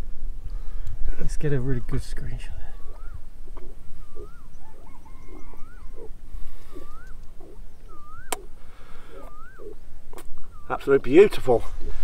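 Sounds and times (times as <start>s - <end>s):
steady low rumble: 0.0s - 12.0s
low hooting notes: 1.6s - 12.0s
bird whistled call: 2.7s - 11.2s.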